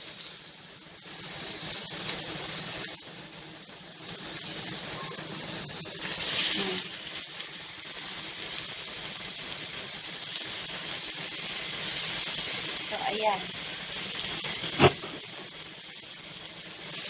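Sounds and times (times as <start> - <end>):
chicken sizzling in grill pan: 0.0 - 17.0
sharp knock: 14.7 - 15.2.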